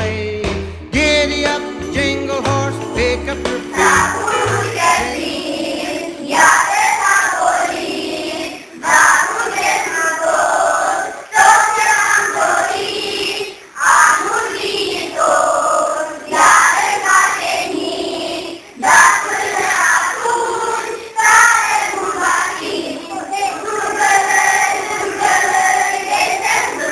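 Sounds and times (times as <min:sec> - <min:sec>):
group of voices singing: 0:01.0 - 0:26.9.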